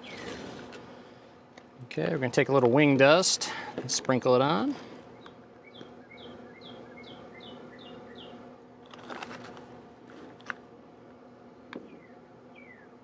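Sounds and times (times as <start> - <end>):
faint steady hum: 0.0 - 13.0
bird chirping: 5.2 - 8.4, 11.8 - 12.9.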